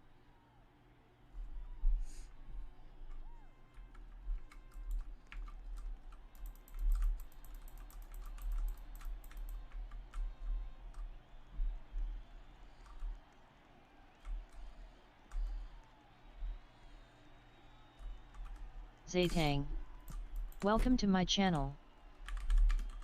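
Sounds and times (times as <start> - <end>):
keyboard key clicks: 3.1 - 11.1.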